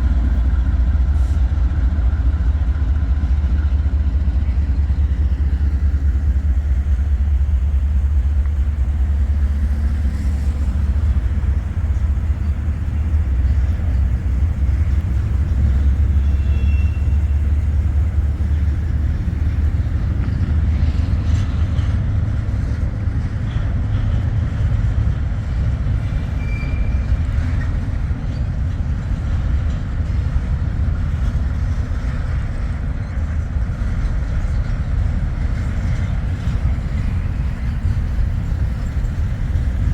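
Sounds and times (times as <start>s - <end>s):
freight train rumbling: 0.0s - 39.9s
faint high squeals: 26.3s - 27.2s.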